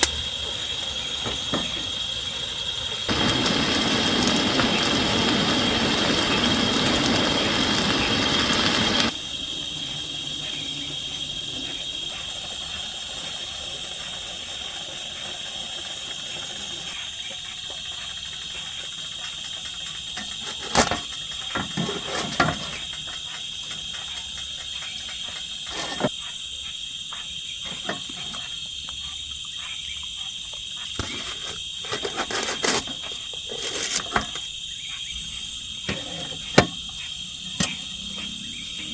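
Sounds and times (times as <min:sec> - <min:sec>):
loud hiss: 0:00.0 - 0:26.1
insects droning: 0:00.0 - 0:38.9
cooking gear knocks and clatters: 0:20.0 - 0:26.1, 0:31.0 - 0:34.5.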